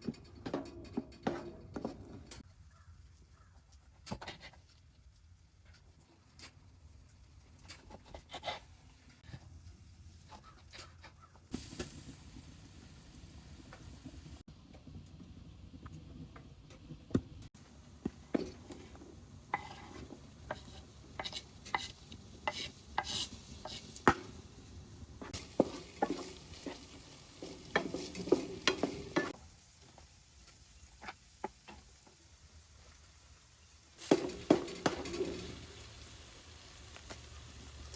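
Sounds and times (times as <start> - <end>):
utensil stirring in a pot: 17.5 - 29.4, 34.0 - 36.3.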